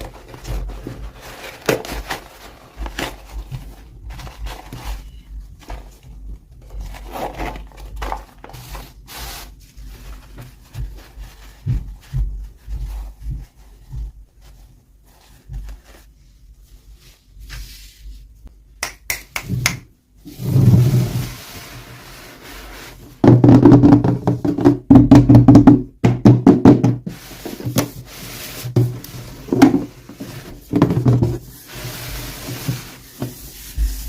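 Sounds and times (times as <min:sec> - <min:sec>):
toy packaging rustling: 0:00.0 - 0:09.0.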